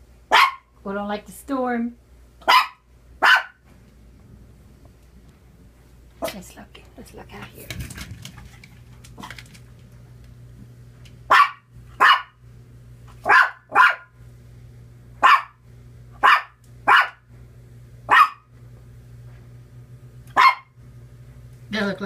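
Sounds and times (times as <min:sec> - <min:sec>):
dog barking: 0:00.3 - 0:00.7, 0:02.4 - 0:03.6, 0:11.3 - 0:12.4, 0:13.2 - 0:14.1, 0:15.2 - 0:15.6, 0:16.2 - 0:17.2, 0:18.1 - 0:18.5, 0:20.3 - 0:20.8.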